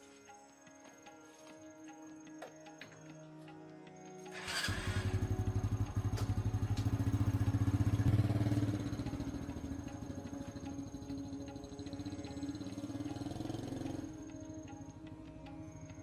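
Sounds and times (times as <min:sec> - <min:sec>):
background music: 0:00.0 - 0:16.0
motorcycle engine running: 0:04.3 - 0:14.9.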